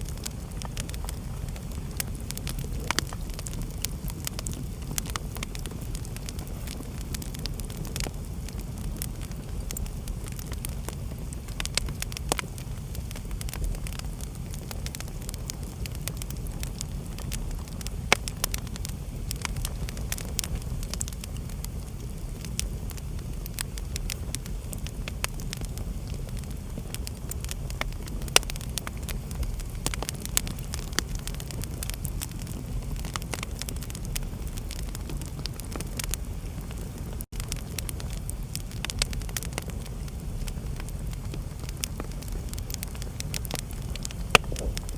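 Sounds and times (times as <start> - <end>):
fire crackling and popping: 0.0 - 44.9.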